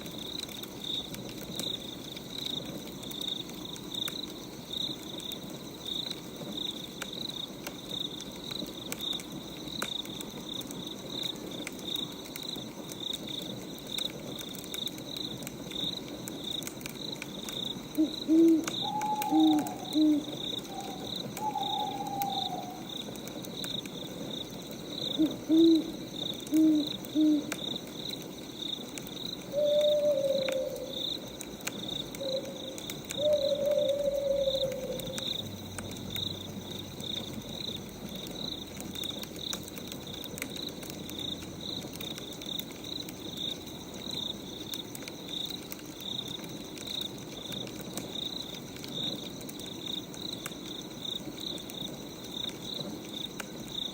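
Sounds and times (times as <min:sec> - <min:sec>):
crickets chirping: 0:00.0 - 0:53.9
owl hooting: 0:18.0 - 0:22.9, 0:25.2 - 0:27.6, 0:29.5 - 0:30.9, 0:32.2 - 0:35.2.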